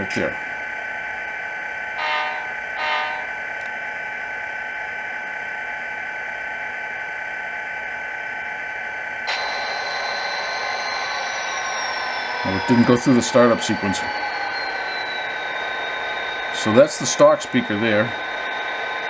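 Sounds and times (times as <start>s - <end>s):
synthetic diesel engine hum: 0.0s - 5.7s, 8.6s - 19.0s
model locomotive horn blast: 2.0s - 3.4s
hiss with falling tone: 9.3s - 19.0s.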